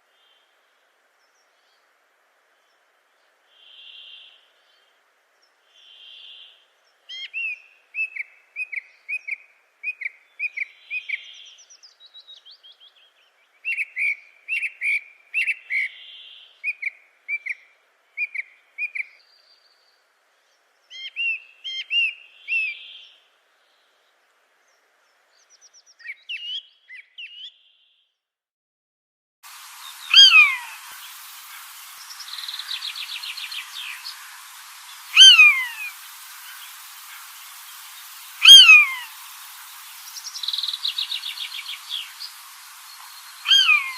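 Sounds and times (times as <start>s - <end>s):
birds chirping: 29.5s - 43.9s.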